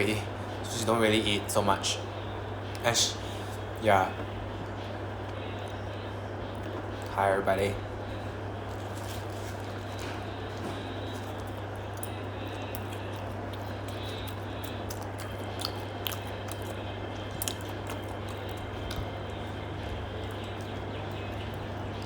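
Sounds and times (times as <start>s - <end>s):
low hum and hiss: 0.0s - 22.0s
person chewing food: 8.6s - 22.0s.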